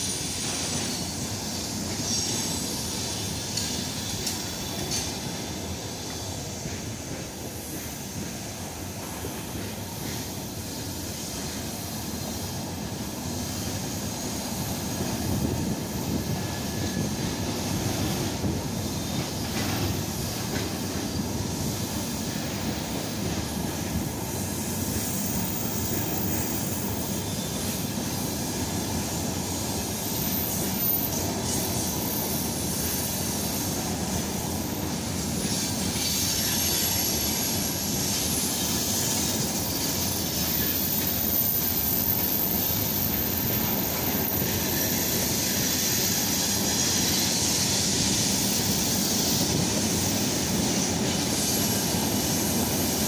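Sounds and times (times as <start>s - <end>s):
faint high wheel squeal: 0.0s - 53.0s
steel wheels rumbling on track: 0.0s - 53.0s.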